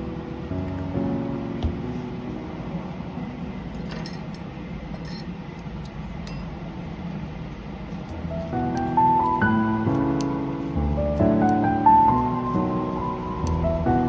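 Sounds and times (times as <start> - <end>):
low steady hum: 0.0 - 14.0
background music: 8.1 - 14.0.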